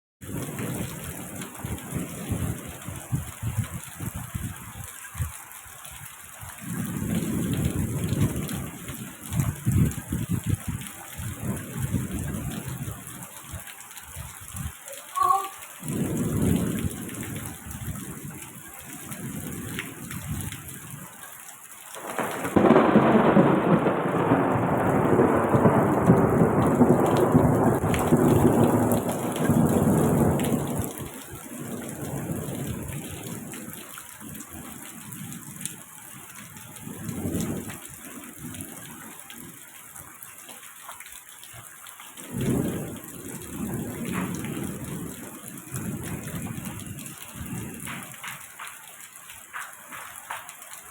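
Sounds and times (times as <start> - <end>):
thunder rolling: 0.2 - 5.3, 6.6 - 13.6, 15.8 - 18.4, 22.0 - 34.4, 42.3 - 48.6
rain falling: 0.2 - 50.9.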